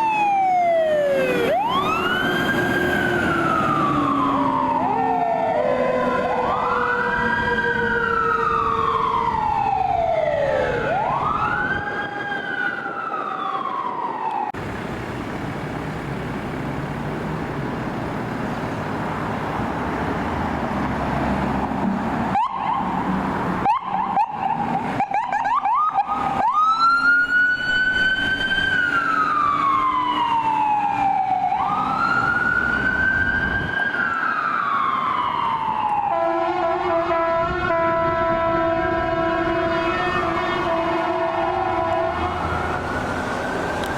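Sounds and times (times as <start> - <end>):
siren wailing: 0.0 - 14.6, 22.3 - 43.9
engine and road noise: 0.0 - 43.9.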